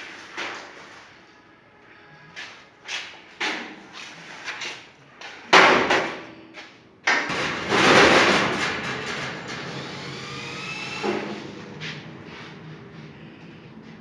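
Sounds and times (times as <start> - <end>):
industrial exhaust fan starting: 7.3 - 14.0.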